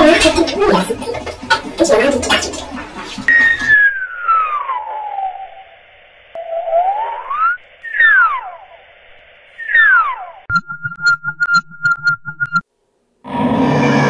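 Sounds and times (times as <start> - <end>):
sliding electronic tone: 3.3 - 12.6.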